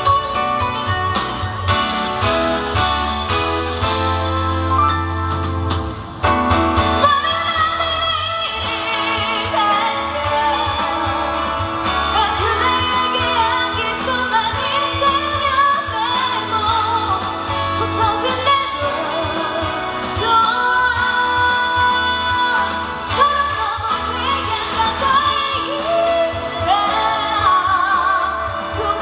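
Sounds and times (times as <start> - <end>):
full band playing: 0.0 - 29.0
woman singing pop-rock song: 6.7 - 29.0.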